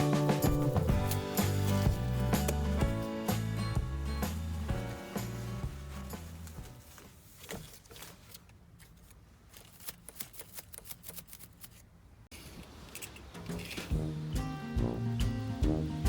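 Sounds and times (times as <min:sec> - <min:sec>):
background music: 0:00.0 - 0:06.8, 0:13.6 - 0:16.0
crisp clicks and rustles: 0:04.4 - 0:13.9.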